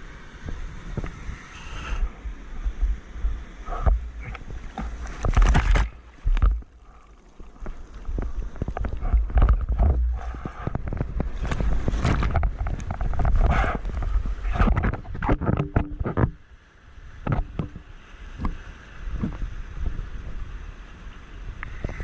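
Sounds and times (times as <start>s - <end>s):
seawater splashing and rushing: 0.0s - 15.2s
wind buffeting microphone: 0.0s - 16.4s, 17.2s - 20.6s, 21.5s - 22.0s.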